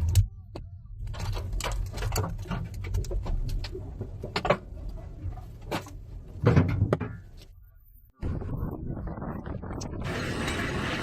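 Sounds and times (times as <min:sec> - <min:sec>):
loose objects clattering and banging: 0:01.0 - 0:07.4
wind buffeting microphone: 0:08.2 - 0:11.0.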